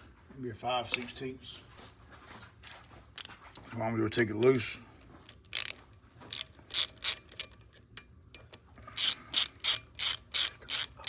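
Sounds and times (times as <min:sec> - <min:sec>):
ratchet wrench clicking: 0:05.3 - 0:07.6, 0:08.4 - 0:11.0.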